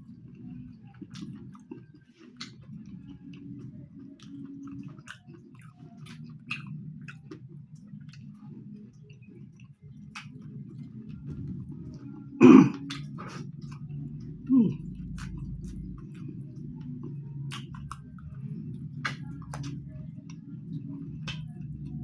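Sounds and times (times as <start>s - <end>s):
close chewing: 0.0s - 22.0s
wet mouth clicks: 1.1s - 3.0s, 4.2s - 7.4s, 12.7s - 14.0s, 17.5s - 18.2s, 19.0s - 20.4s, 21.2s - 21.6s
person coughing: 12.4s - 12.8s.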